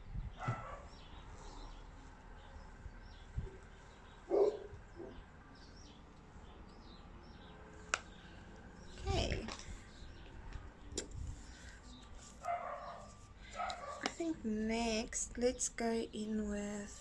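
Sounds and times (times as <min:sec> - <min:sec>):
small birds chirping: 0:00.0 - 0:17.0
dog bark: 0:00.4 - 0:01.0, 0:04.3 - 0:05.2, 0:12.4 - 0:14.0.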